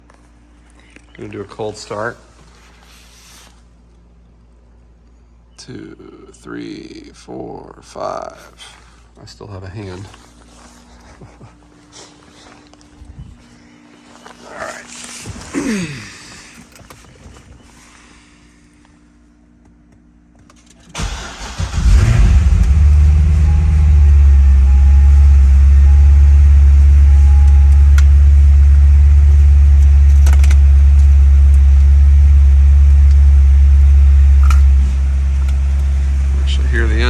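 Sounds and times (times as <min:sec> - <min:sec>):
car engine revving and idling: 0:21.0 - 0:37.0.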